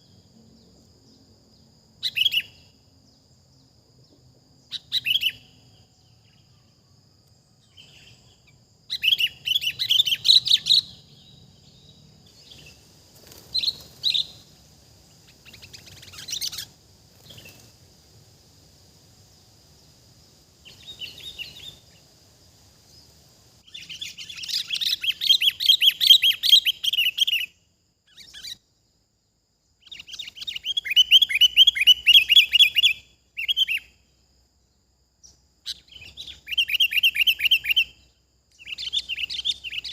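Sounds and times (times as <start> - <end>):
faint high whine: 0.0 - 25.1.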